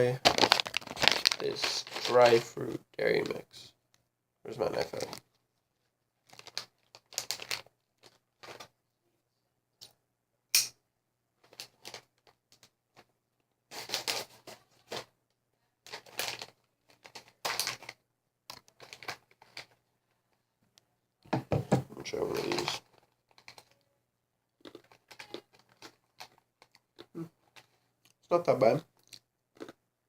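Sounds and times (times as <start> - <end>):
plastic packaging crinkling and tearing: 0.1 - 2.5, 6.2 - 8.7, 11.4 - 12.7, 13.7 - 15.1, 15.8 - 19.8, 22.1 - 23.8, 24.6 - 26.8.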